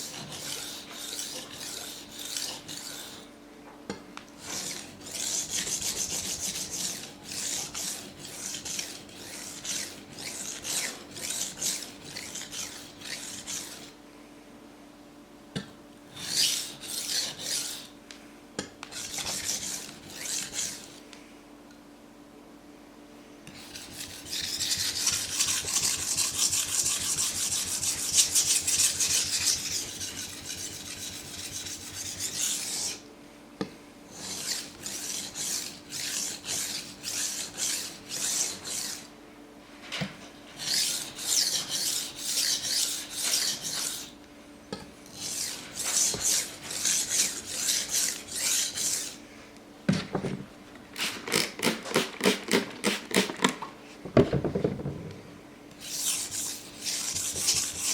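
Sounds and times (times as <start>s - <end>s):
knife scraping on waterstone: 0.0s - 3.3s, 4.4s - 14.0s, 16.2s - 17.9s, 18.9s - 21.0s, 23.5s - 33.0s, 34.1s - 39.1s, 40.6s - 44.2s, 45.1s - 49.2s, 55.8s - 57.9s.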